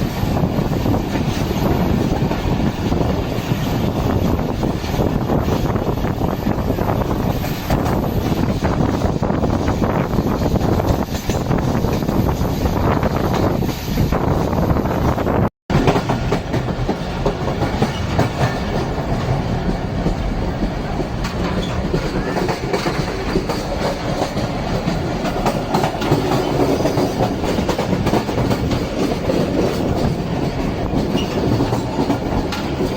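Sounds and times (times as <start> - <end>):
train running on track: 0.0 - 32.9.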